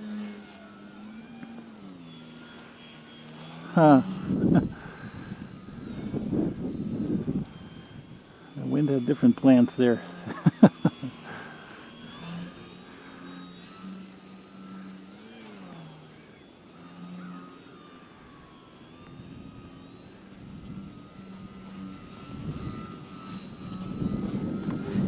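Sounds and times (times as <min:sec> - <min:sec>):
model plane propeller buzzing: 0:00.0 - 0:25.0
wind noise on microphone: 0:04.1 - 0:08.3, 0:19.2 - 0:25.0.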